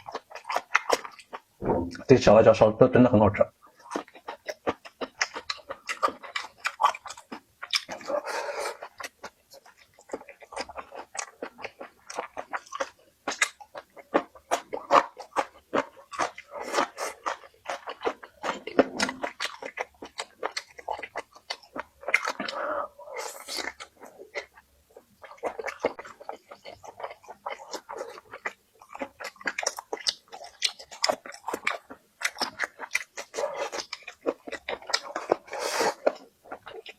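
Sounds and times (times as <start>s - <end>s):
person chewing crunchy food: 0.0s - 2.0s, 3.7s - 36.9s.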